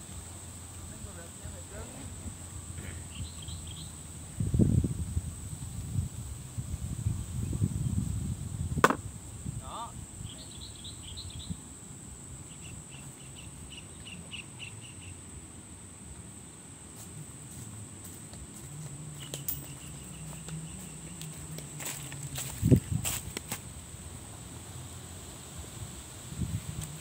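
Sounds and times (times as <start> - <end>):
high-pitched insect drone: 0.0 - 27.0
small bird chirping: 2.8 - 4.0, 9.7 - 11.7, 12.5 - 15.2, 19.1 - 21.9.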